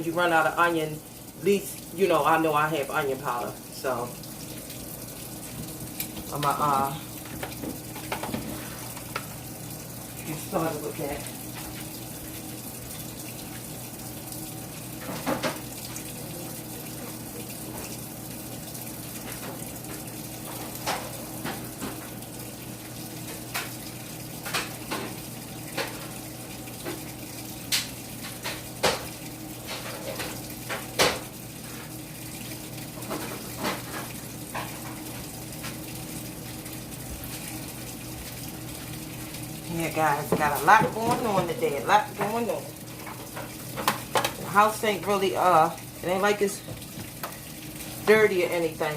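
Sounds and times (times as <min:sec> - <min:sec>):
washing machine running: 0:00.0 - 0:48.9.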